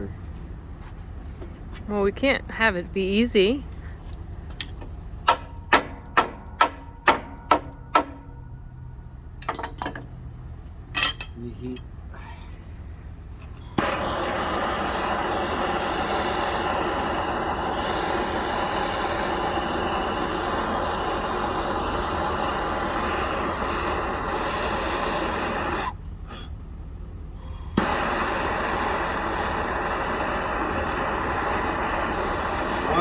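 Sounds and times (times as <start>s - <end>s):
torch flame burning: 13.1s - 26.2s, 27.4s - 33.0s.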